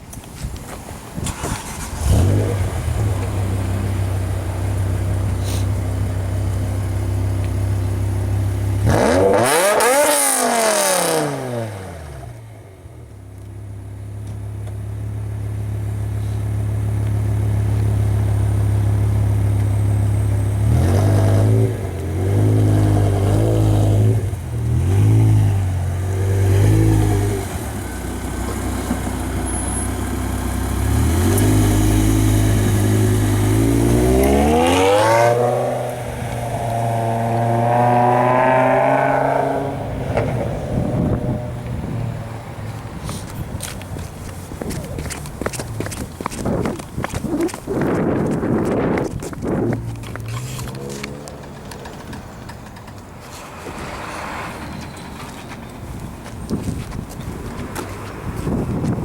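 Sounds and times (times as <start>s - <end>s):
car engine idling and revving: 0.8s - 59.0s.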